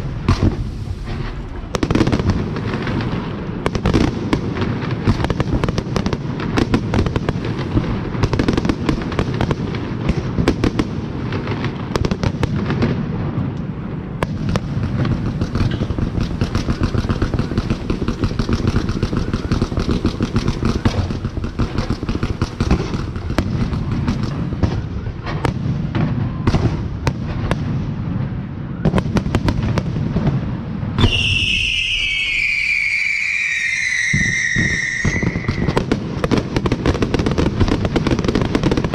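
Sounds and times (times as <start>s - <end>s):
fireworks crackling and popping: 0.0s - 38.9s
falling firework whistle: 31.0s - 36.0s.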